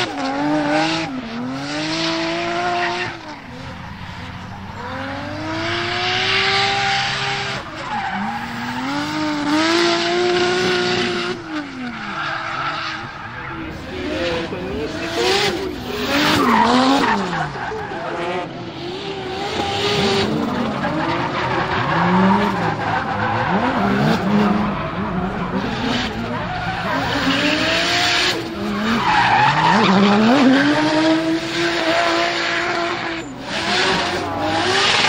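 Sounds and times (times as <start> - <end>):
car engine revving: 0.0 - 35.0
tyres squealing and skidding: 0.0 - 35.0.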